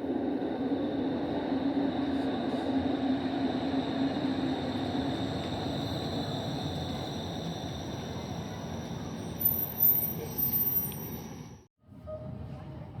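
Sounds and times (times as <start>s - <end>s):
rail car rumble: 0.0s - 13.0s
faint high whine: 3.6s - 11.7s.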